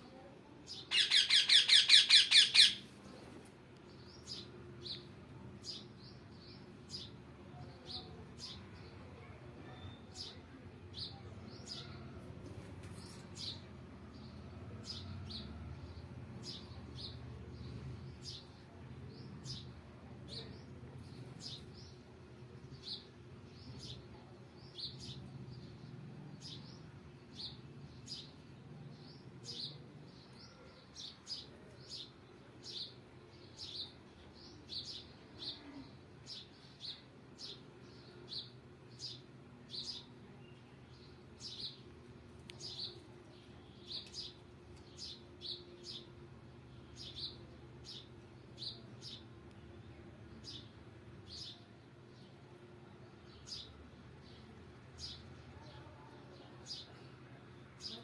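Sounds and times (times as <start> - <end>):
parrot chirping: 0.9 - 2.8.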